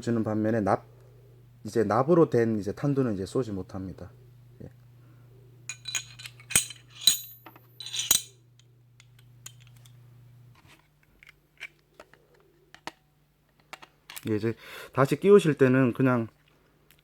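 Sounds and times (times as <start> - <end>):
metal pistol parts clinking: 5.7 - 8.3, 9.0 - 10.0.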